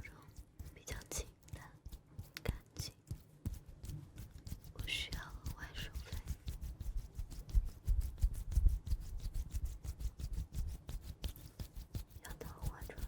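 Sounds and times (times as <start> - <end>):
soft clicks and taps: 0.0 - 6.4.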